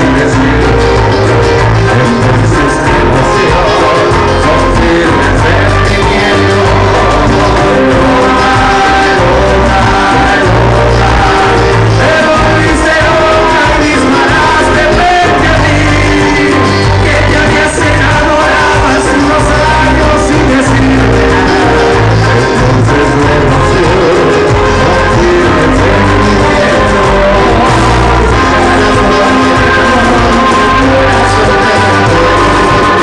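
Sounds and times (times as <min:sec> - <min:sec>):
live band music: 0:00.0 - 0:33.0
person singing: 0:00.0 - 0:33.0
repeating bass line: 0:00.0 - 0:33.0.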